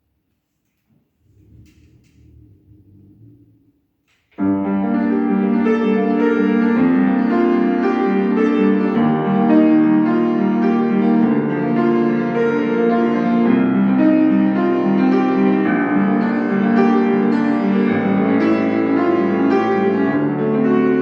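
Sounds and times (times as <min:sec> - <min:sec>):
piano playing: 0:04.4 - 0:21.0.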